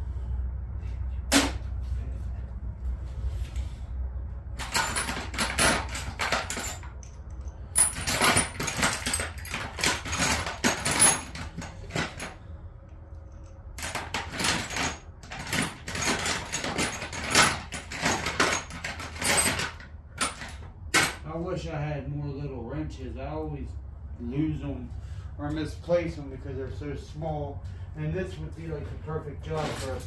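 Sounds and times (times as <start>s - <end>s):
metal hand tools clattering: 4.6s - 12.4s, 13.8s - 21.3s, 29.4s - 30.0s.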